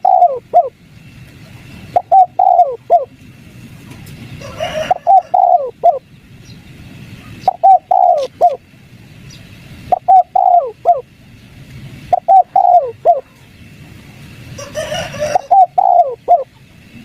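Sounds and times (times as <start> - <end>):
dove cooing: 0.0 - 0.8, 1.8 - 3.2, 4.4 - 6.1, 7.2 - 8.6, 9.9 - 11.1, 12.0 - 13.4, 14.6 - 16.6.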